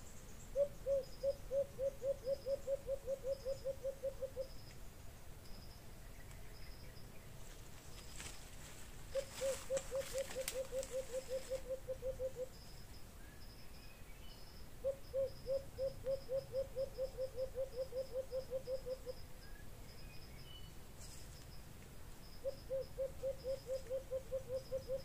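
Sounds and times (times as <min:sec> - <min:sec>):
low hooting bird call: 0:00.5 - 0:04.7, 0:09.1 - 0:12.7, 0:14.8 - 0:19.6, 0:22.4 - 0:25.0
short rustle: 0:07.4 - 0:11.6.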